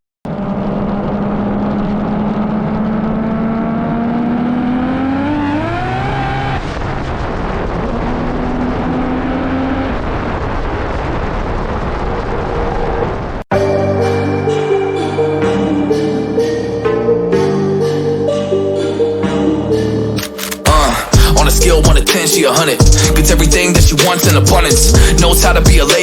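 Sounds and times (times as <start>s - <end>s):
car engine accelerating: 0.3s - 11.1s, 20.6s - 22.1s, 22.8s - 26.0s.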